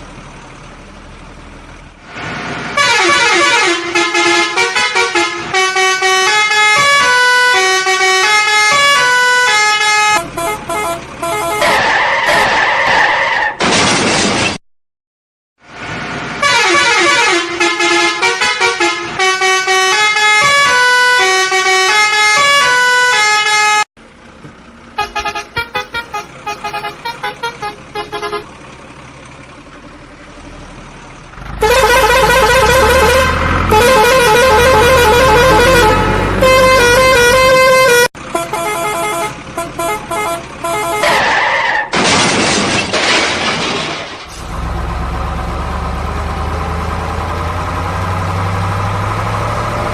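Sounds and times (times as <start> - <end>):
heavy engine running: 0.0 - 12.6, 24.0 - 49.9
musical vehicle horn: 2.8 - 12.4, 16.4 - 23.9, 25.0 - 28.5, 31.6 - 41.4.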